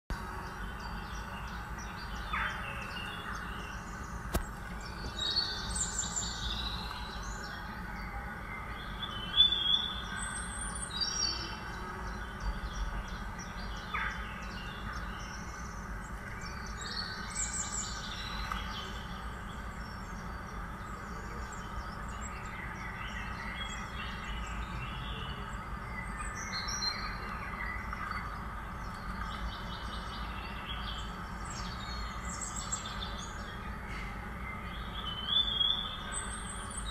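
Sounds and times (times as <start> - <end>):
birds chirping: 0.1 - 36.9
steady background hiss: 0.1 - 36.9.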